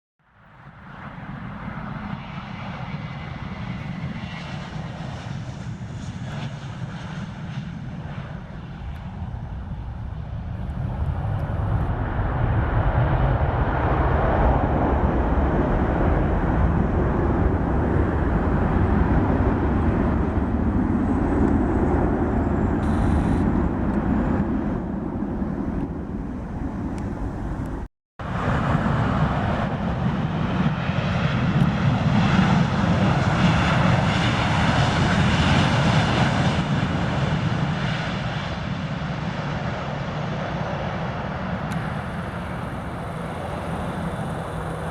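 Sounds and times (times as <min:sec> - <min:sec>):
jet engines rumbling: 0:00.6 - 0:44.9.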